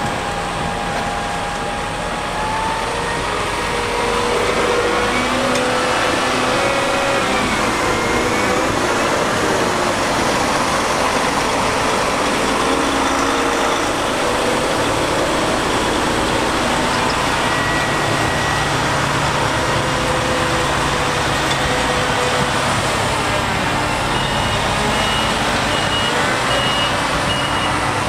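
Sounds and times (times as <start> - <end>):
heavy diesel machinery running: 0.0 - 28.0.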